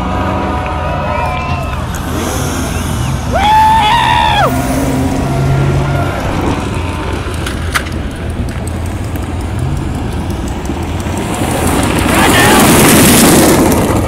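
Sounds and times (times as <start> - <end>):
race car engines rumbling: 0.0 - 14.0
spectator noise: 0.4 - 7.4, 11.6 - 13.3.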